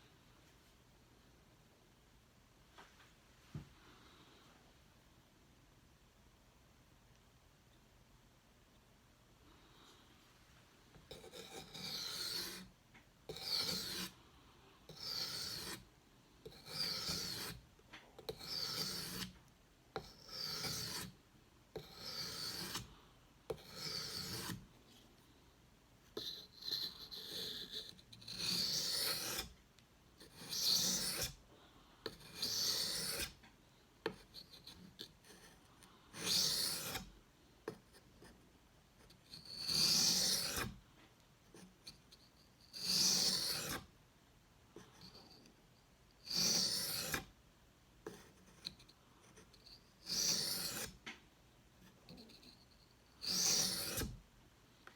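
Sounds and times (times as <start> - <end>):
knife scraping on whetstone: 11.1 - 12.7, 13.3 - 14.2, 14.9 - 15.8, 16.5 - 17.6, 18.3 - 19.4, 20.0 - 21.2, 21.8 - 22.9, 23.5 - 24.6, 26.2 - 29.6, 30.2 - 31.4, 32.1 - 33.4, 34.0 - 37.1, 39.3 - 40.8, 42.7 - 43.9, 46.3 - 47.3, 48.1 - 51.0, 51.8 - 54.2.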